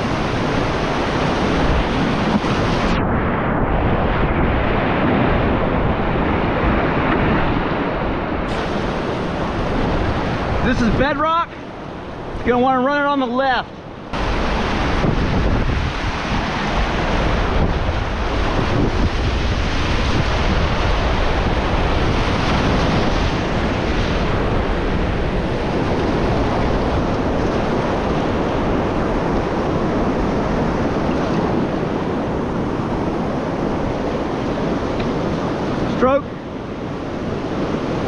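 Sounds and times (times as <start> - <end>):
wind noise on microphone: 0.0 - 12.6, 13.6 - 38.0
creek rapid rushing: 5.3 - 12.5.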